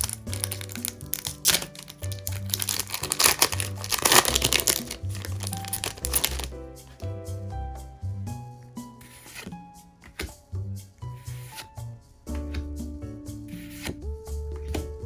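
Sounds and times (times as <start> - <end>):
packaging crinkling: 0.0 - 6.5
background music: 0.0 - 15.0.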